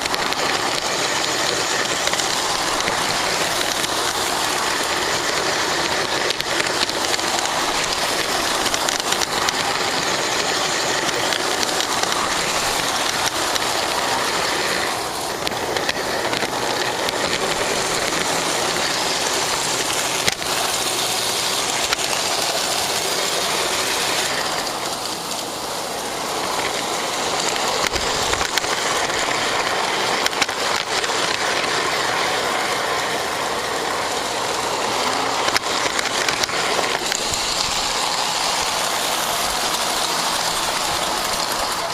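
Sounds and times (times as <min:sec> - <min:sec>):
sharp clicks: 0:00.0 - 0:25.6, 0:26.5 - 0:32.2
model train wheels and motor rattling: 0:00.0 - 0:41.9.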